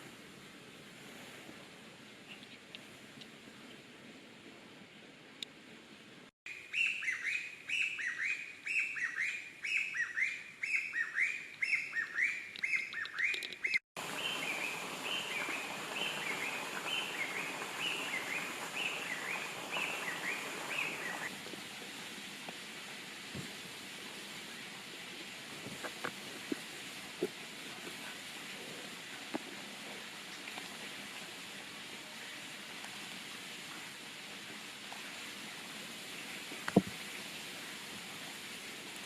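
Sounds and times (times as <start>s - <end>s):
bird chirping: 6.5s - 21.3s
steady hiss: 14.0s - 39.0s.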